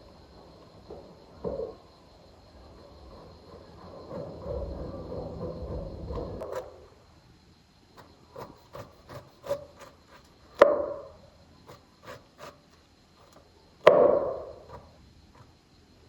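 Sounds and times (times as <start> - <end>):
heavy knocks on wood: 13.8 - 14.6.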